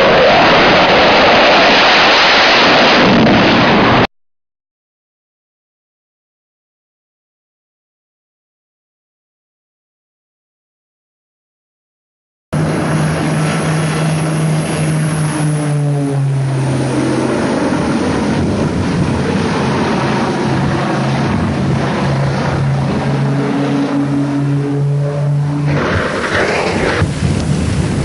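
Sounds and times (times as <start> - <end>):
heavy rushing noise: 0.0 - 4.1, 12.6 - 28.0
propeller aircraft engine droning: 0.0 - 4.1, 12.6 - 28.0.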